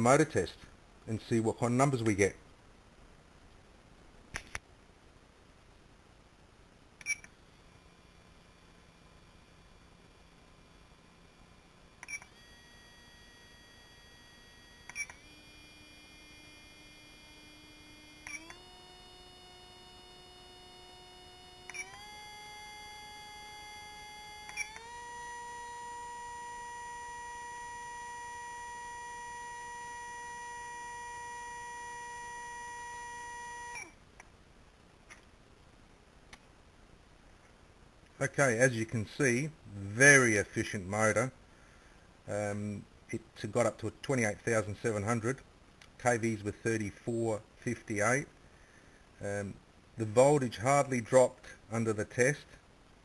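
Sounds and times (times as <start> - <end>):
electric motor whine: 7.4 - 33.9.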